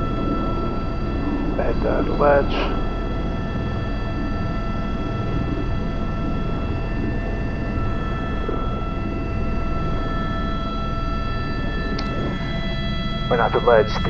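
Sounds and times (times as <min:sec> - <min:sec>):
constant whining tones: 0:00.0 - 0:14.0
helicopter rotor and turbine rumble: 0:00.0 - 0:14.0.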